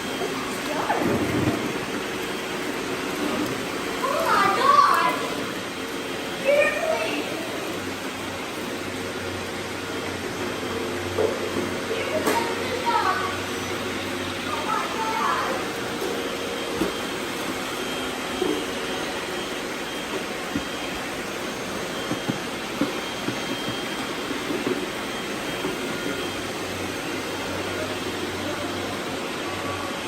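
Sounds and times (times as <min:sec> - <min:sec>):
robot vacuum whirring: 0:11.6 - 0:28.2.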